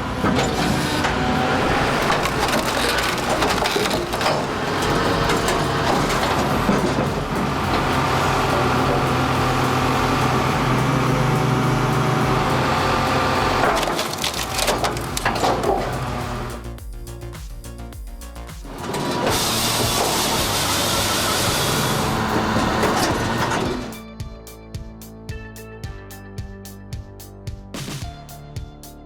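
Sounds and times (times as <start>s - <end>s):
machine motor humming: 0.8s - 16.6s
wood cracking and splintering: 1.6s - 7.1s, 13.6s - 16.0s.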